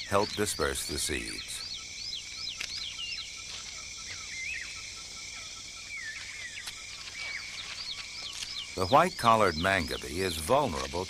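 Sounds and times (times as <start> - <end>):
birds whistling calls: 0.0 - 11.0
high insect buzz: 0.0 - 11.0.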